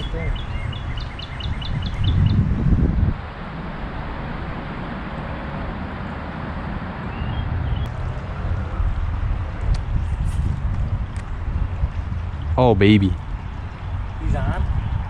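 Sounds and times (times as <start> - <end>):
small bird chirping: 0.0 - 2.5
steady outdoor hiss: 0.0 - 15.0
wind buffeting microphone: 0.0 - 15.0.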